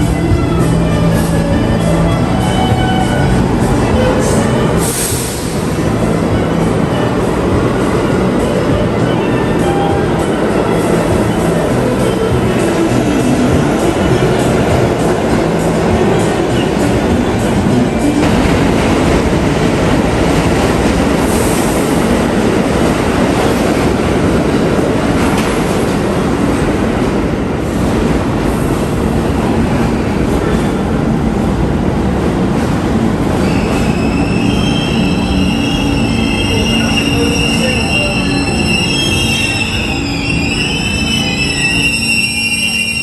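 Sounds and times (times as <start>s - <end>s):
train wheels rumbling on rails: 0.0s - 43.0s
high-pitched wheel squeal: 33.4s - 43.0s.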